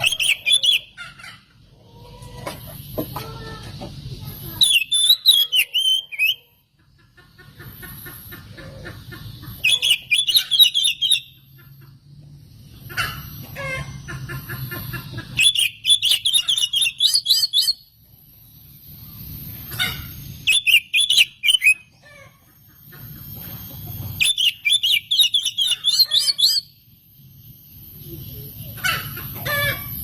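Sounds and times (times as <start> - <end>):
bird singing chattering notes: 0.0 - 1.0, 4.1 - 6.5, 9.1 - 11.9, 12.8 - 30.0.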